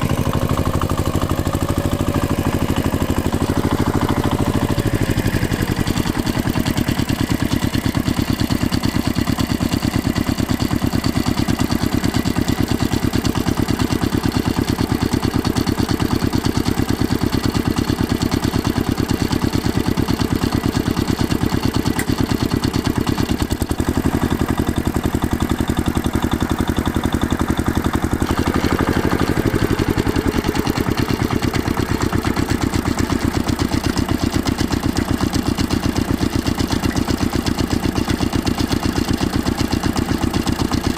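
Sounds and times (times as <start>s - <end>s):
diesel engine knocking: 0.0s - 40.9s.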